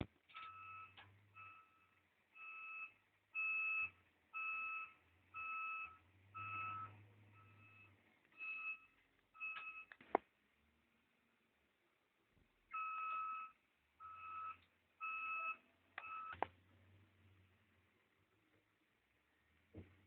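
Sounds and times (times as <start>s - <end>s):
reversing alarm beeping: 0.4s - 9.9s, 12.7s - 16.4s.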